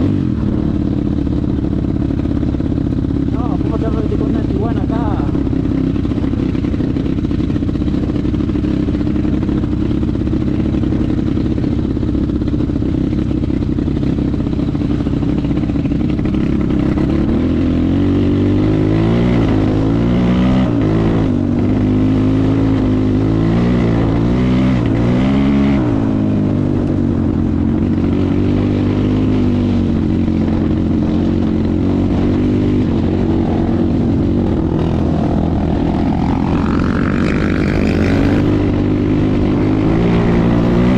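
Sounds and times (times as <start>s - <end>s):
motorcycle engine revving: 0.0s - 40.9s
higher rising engine note: 33.2s - 40.9s.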